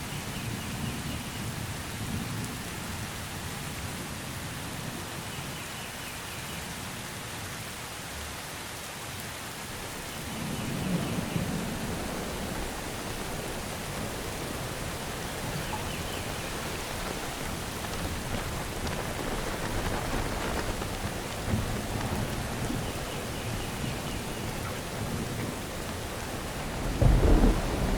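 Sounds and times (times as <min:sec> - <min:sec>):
rain falling in forest: 0:00.0 - 0:27.9
thunder rumble: 0:09.8 - 0:27.9.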